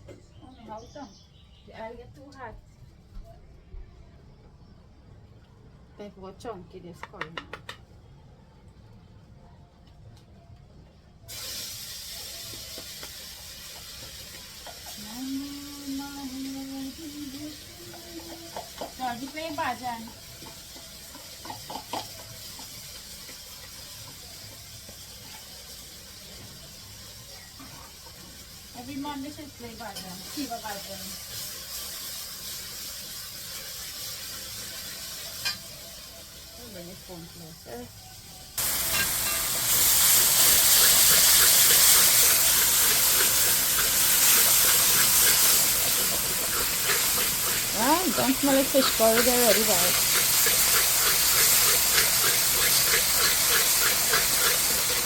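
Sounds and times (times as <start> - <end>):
curry sizzling in hot oil: 11.2 - 55.0.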